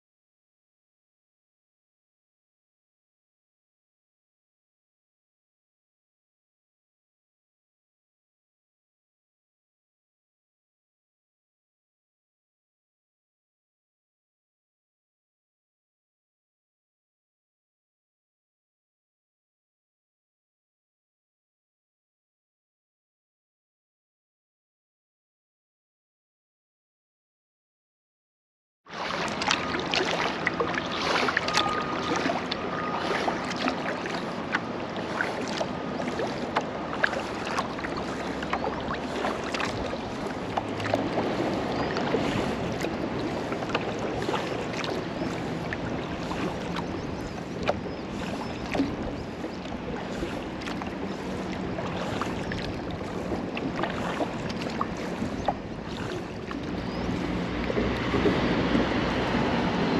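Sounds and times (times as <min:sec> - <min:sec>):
paddle splashes: 0:28.9 - 0:59.9
water lapping against hull: 0:28.9 - 0:59.9.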